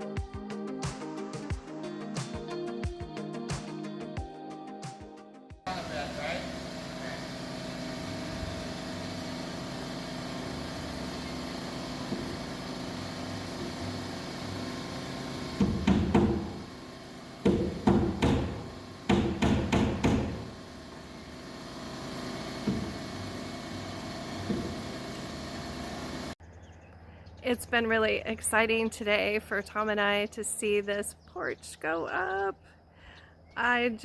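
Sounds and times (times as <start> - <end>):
hammer strikes on wood: 15.5 - 16.7, 17.4 - 20.6, 22.6 - 23.0, 24.4 - 24.8.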